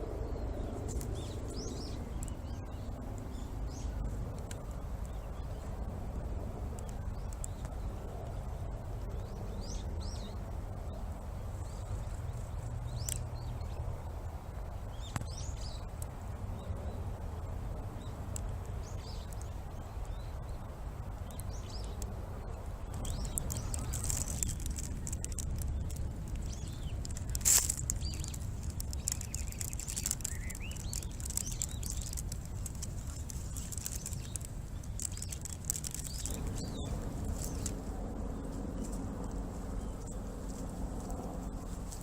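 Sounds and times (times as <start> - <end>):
low outdoor rumble: 0.0 - 42.0
small birds chirping: 0.0 - 42.0
faint clicks: 12.0 - 13.8, 21.1 - 37.9.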